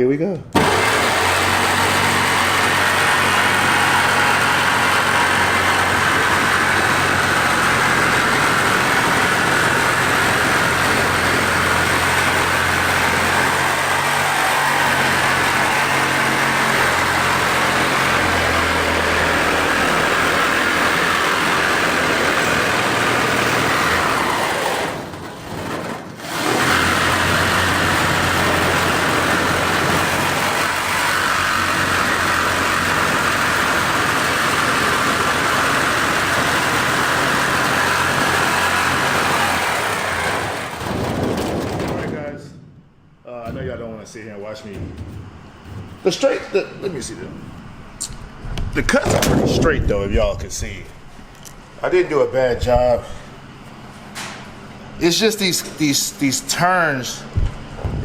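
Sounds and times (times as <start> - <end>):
power tool cutting metal: 0.6 - 42.1.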